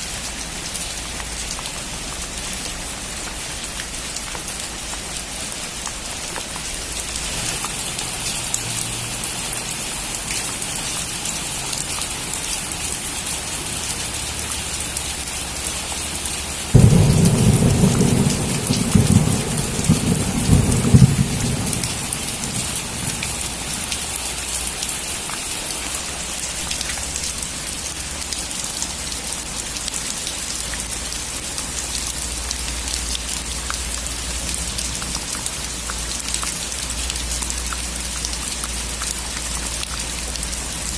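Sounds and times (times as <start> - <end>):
heavy rain falling: 0.0 - 40.9
thunder crack rolling: 16.7 - 23.9.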